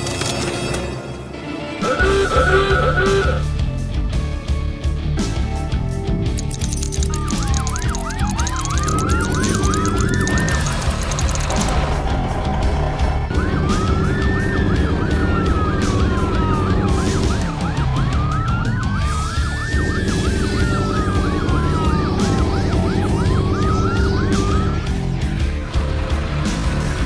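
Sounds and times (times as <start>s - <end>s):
siren wailing: 1.8s - 3.5s, 6.4s - 12.0s, 13.2s - 25.2s
yelping siren: 1.8s - 3.5s, 6.5s - 11.7s, 13.3s - 25.0s
background music with beat: 1.9s - 27.0s.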